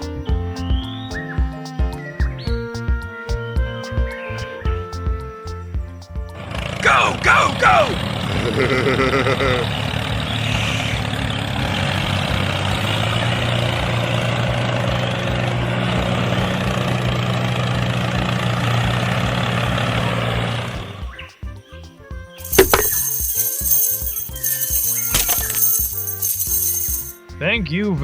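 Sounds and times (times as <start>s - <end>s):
vehicle engine running: 6.4s - 21.1s.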